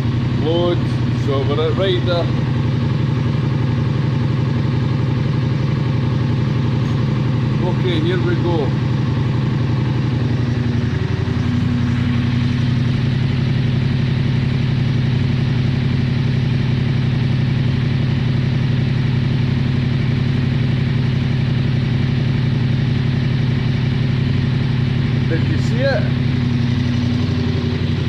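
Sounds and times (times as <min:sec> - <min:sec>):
motorcycle engine idling: 0:00.0 - 0:28.0.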